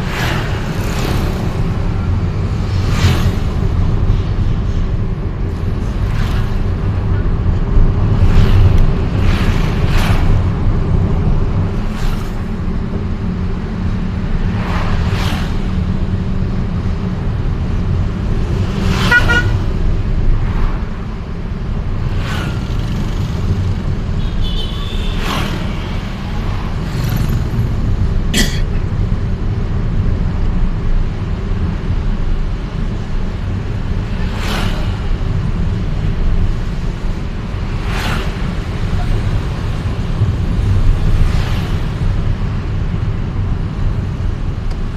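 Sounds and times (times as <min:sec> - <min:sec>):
street traffic noise: 0:00.0 - 0:44.9
vehicle horn toots: 0:19.0 - 0:19.6.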